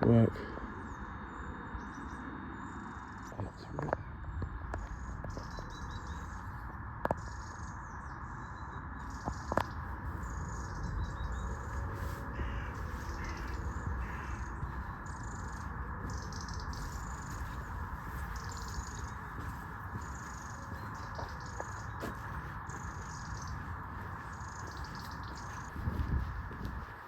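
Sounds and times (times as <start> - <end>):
high twittering of small birds: 0.0 - 27.0
harsh caws: 11.6 - 25.8.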